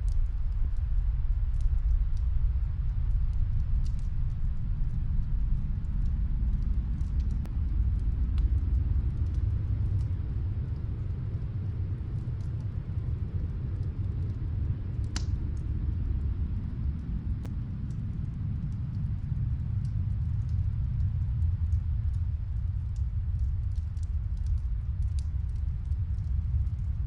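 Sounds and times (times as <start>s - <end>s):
snowstorm wind rumbling: 0.0s - 27.0s
wood fire crackling: 0.0s - 27.0s.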